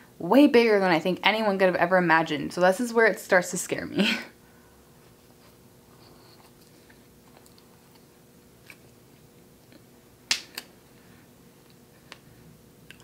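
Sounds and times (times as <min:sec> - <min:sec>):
person chewing: 0:06.3 - 0:09.0.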